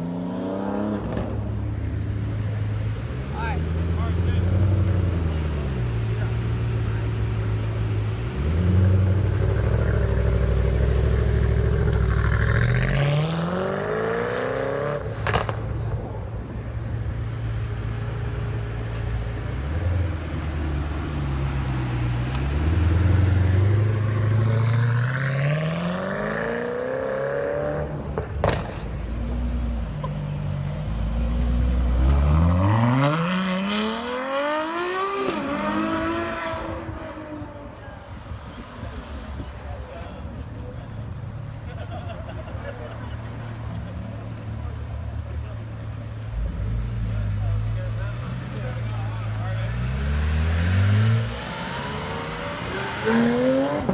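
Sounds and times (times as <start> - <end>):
cars accelerating hard: 0.0 - 15.8, 17.2 - 40.2, 41.1 - 53.9
exhaust cracks: 28.0 - 30.3.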